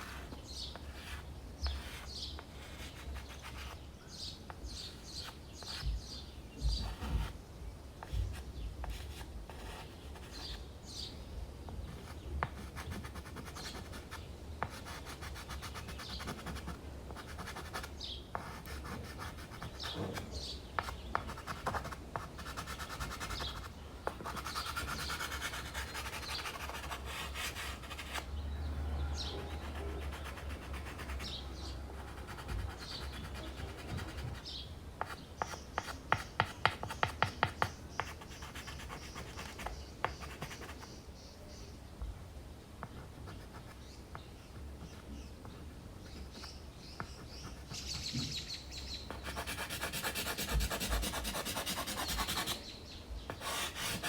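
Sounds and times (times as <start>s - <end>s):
pastel scratching on canvas board: 0.0s - 3.8s, 6.6s - 7.4s, 8.0s - 10.6s, 11.8s - 28.3s, 29.2s - 31.4s, 32.0s - 40.9s, 49.1s - 52.6s, 53.3s - 54.0s
bird chirps: 46.0s - 49.4s.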